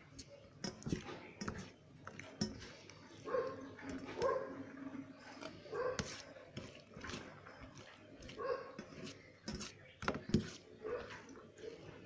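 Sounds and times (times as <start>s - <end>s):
dog barking: 3.2s - 4.6s, 5.7s - 6.1s, 8.4s - 8.8s, 10.8s - 11.2s.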